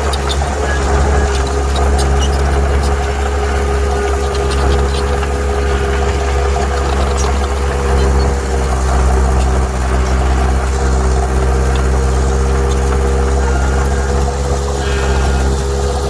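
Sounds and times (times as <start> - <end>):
heavy diesel engine rumbling: 0.0 - 16.0.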